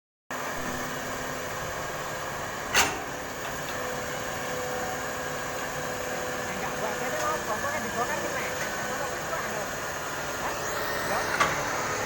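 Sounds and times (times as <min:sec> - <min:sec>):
excavator engine running: 0:00.4 - 0:12.0.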